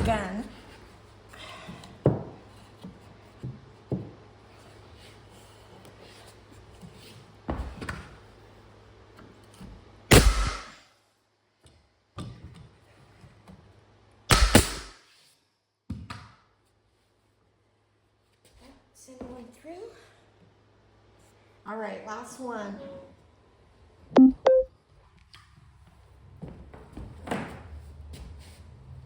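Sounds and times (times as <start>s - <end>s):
nail gun firing: 10.1s - 10.8s, 14.3s - 15.0s.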